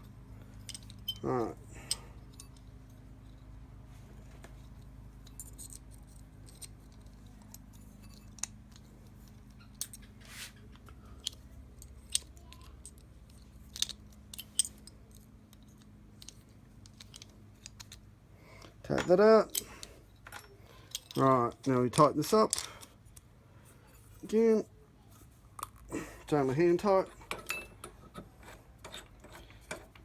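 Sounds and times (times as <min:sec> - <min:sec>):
metal tool parts clicking: 0:00.6 - 0:02.7, 0:05.2 - 0:10.2, 0:11.2 - 0:18.1, 0:18.9 - 0:23.2.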